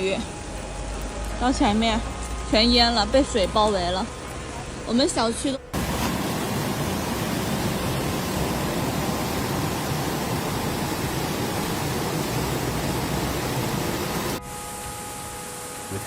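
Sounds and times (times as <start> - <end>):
heavy rain pouring: 5.8 - 14.4.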